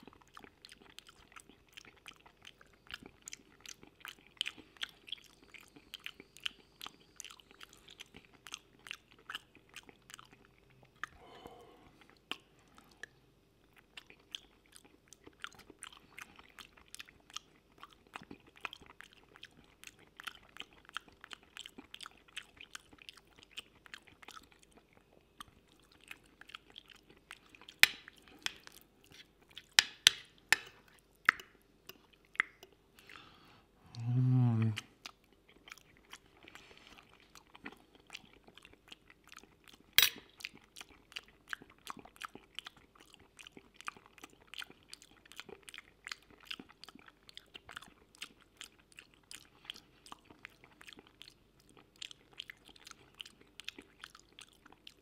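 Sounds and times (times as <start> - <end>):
person chewing: 0.0 - 55.0
cutlery clicking on plate: 40.0 - 40.3.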